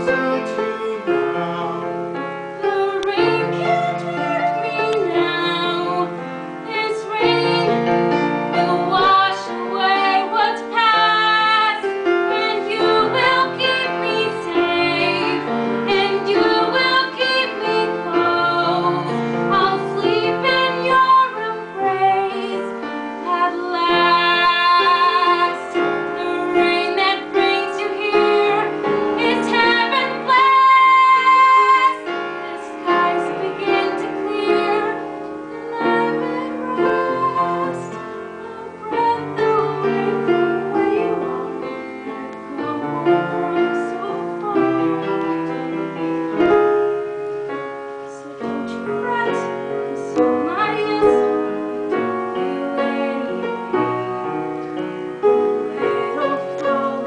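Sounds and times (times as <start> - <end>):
woman singing: 0.0 - 46.7, 48.0 - 53.9, 55.5 - 57.0
piano accompaniment: 0.0 - 57.0.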